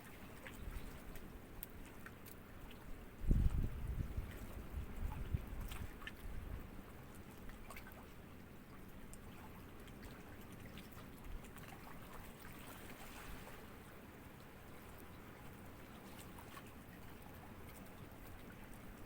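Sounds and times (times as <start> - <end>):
small waves lapping: 0.0 - 19.0
water splashes and drips: 0.0 - 19.0.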